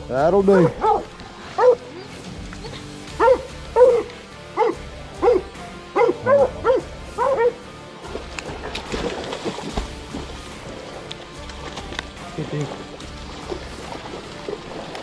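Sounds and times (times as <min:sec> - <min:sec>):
dog barking: 0:00.5 - 0:01.9, 0:03.2 - 0:07.6.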